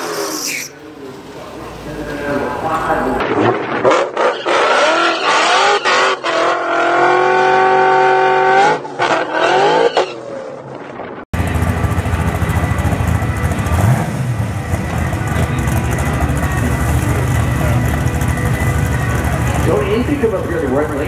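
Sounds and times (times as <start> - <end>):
engine revving: 3.3 - 10.1, 11.4 - 21.0
car engine rumbling at low revs: 11.4 - 21.0.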